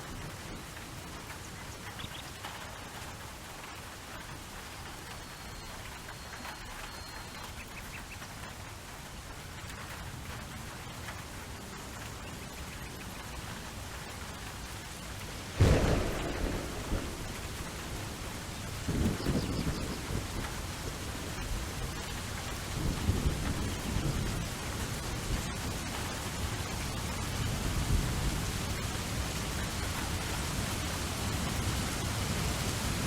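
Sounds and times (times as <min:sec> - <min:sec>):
steady rain: 0:00.0 - 0:33.0
rolling thunder rumbles: 0:15.4 - 0:30.3
thunderclap: 0:15.5 - 0:24.5.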